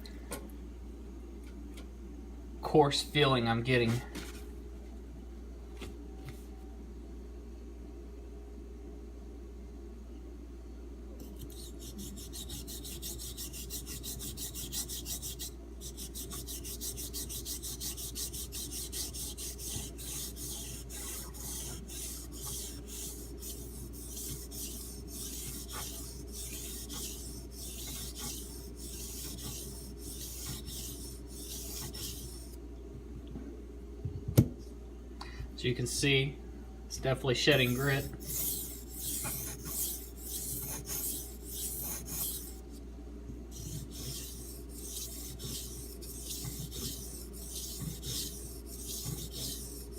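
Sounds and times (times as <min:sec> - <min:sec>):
knife scraping on whetstone: 0:11.4 - 0:32.6, 0:37.6 - 0:42.6, 0:43.6 - 0:49.9.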